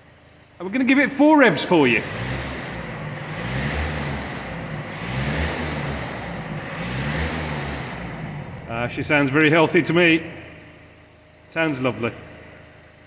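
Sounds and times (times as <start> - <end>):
diesel engine revving: 0.6 - 13.0.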